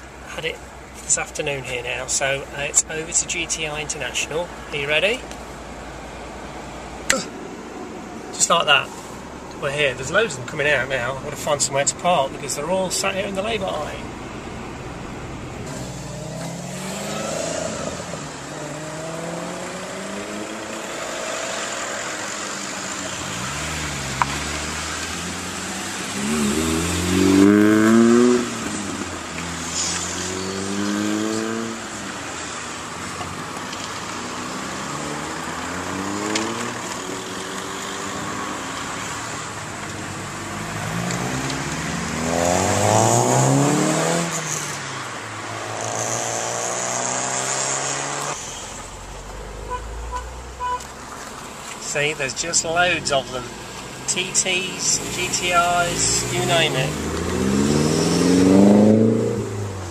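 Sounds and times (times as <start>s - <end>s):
cars accelerating past: 15.6s - 59.9s.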